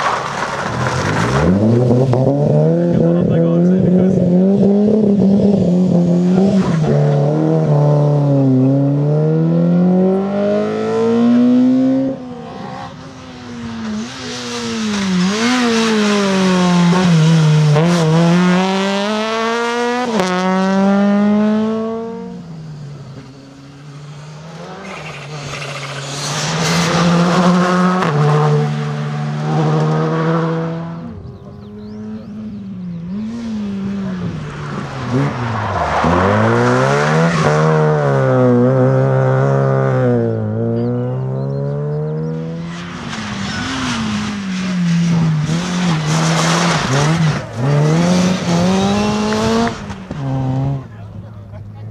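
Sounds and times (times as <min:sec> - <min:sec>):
rally car engines revving: 0:00.0 - 0:51.9
tyre squeal: 0:24.7 - 0:26.9.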